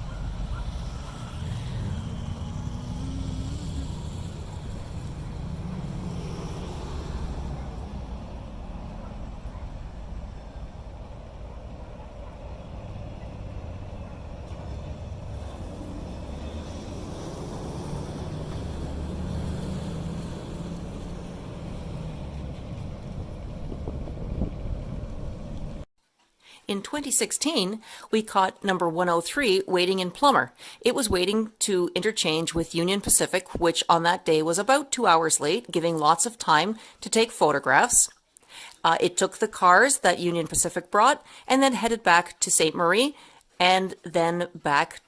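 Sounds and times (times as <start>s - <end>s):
locomotive engine rumbling: 0.0s - 25.8s.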